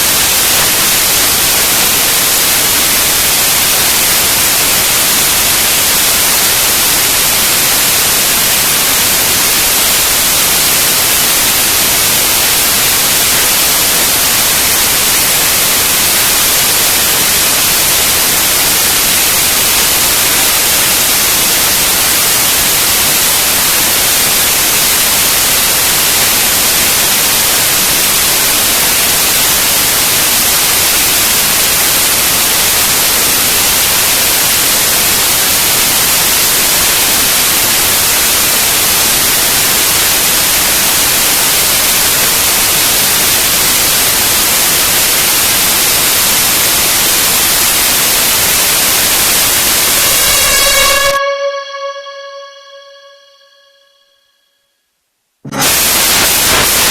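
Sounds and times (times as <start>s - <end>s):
loud static hiss: 0.0s - 53.2s, 55.4s - 56.9s
plucked musical note: 50.0s - 54.2s.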